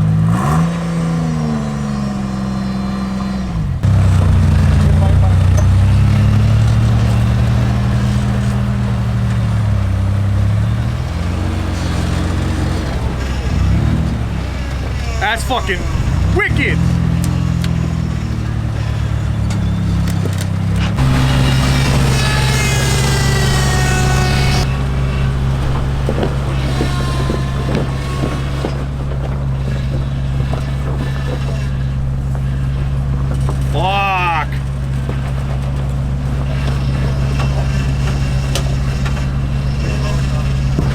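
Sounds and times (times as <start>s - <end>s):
vehicle engine running at low revs: 0.0s - 40.9s
falling whine: 2.0s - 40.9s.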